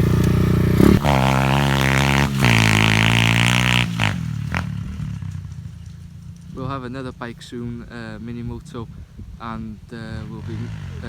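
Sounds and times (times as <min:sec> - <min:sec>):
motorbike engine revving high: 0:00.0 - 0:05.6, 0:10.0 - 0:11.0.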